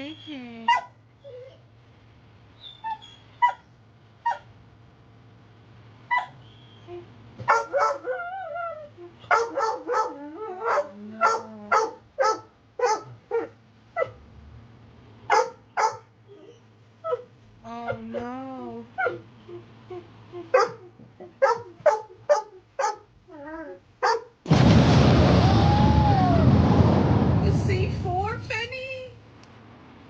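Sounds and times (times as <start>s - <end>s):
dog whining: 0.0s - 1.7s, 2.6s - 4.5s, 6.1s - 14.2s, 15.3s - 24.3s
dog barking: 0.7s - 1.0s, 3.4s - 4.5s, 6.1s - 6.4s, 7.4s - 8.2s, 9.2s - 14.2s, 15.3s - 16.1s, 20.5s - 23.1s, 24.0s - 24.4s.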